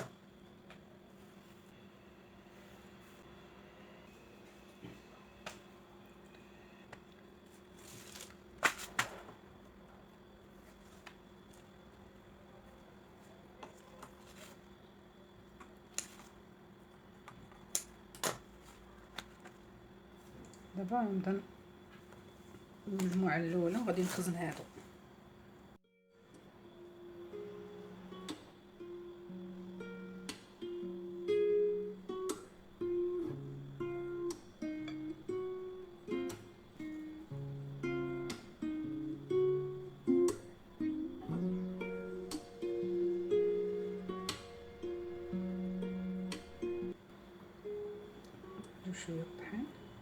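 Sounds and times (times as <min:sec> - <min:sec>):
faint steady hum: 0:00.0 - 0:50.0
pastry sheets rustling: 0:07.4 - 0:09.6, 0:13.1 - 0:14.8, 0:18.2 - 0:20.4, 0:22.9 - 0:25.0
plucked acoustic guitar tune: 0:27.6 - 0:47.0.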